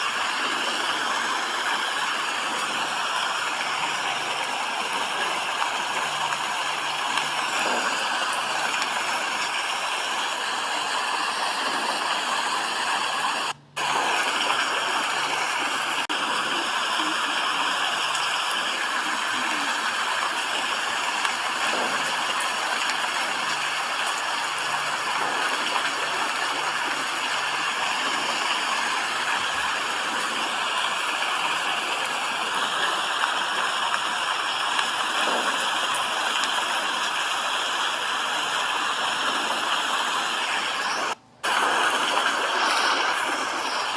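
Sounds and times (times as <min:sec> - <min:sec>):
steady rain: 0:00.0 - 0:43.9.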